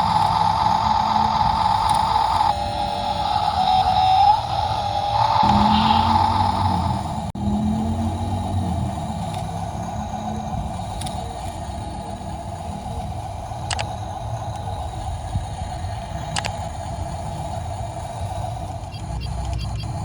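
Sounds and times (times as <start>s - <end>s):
motor running with low rumble: 0.0s - 20.0s
sharp clicks: 13.6s - 14.0s, 16.2s - 16.7s, 18.9s - 20.0s.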